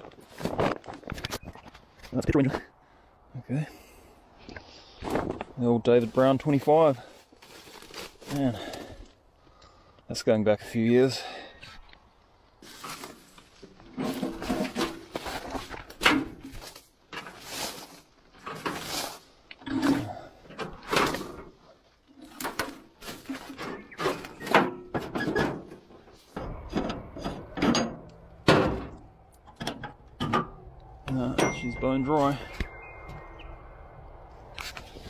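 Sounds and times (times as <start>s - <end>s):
metal parts knocking and scraping: 13.8s - 17.5s, 19.6s - 32.7s.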